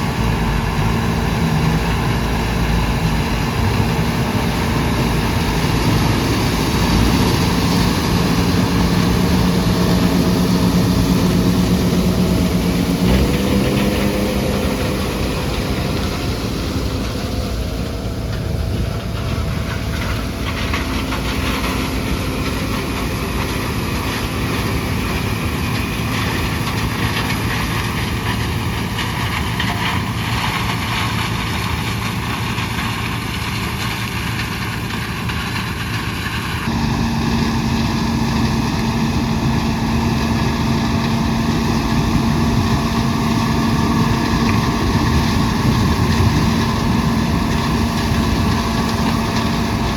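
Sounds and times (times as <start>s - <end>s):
combine harvester running: 0.0s - 49.9s
steady hum: 36.7s - 49.9s.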